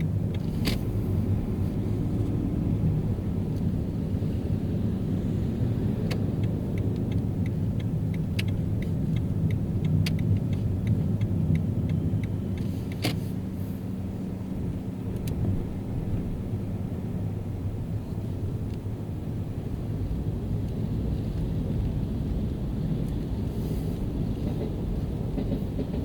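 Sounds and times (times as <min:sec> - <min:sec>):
car road and engine rumble: 0:00.0 - 0:26.0
light ticking: 0:06.0 - 0:13.2.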